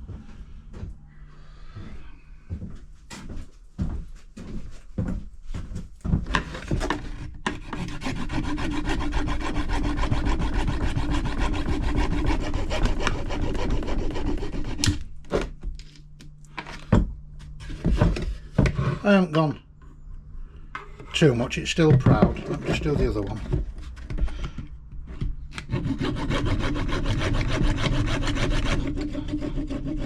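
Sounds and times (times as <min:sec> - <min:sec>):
fast cutting of plastic: 0:06.7 - 0:15.0.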